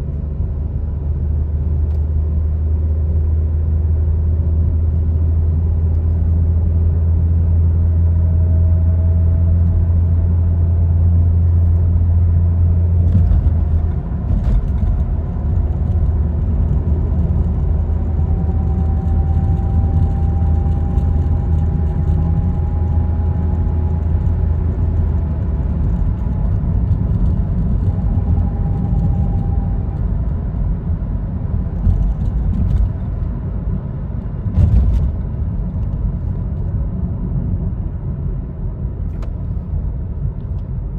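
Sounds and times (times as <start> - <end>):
car engine humming: 7.6 - 40.6.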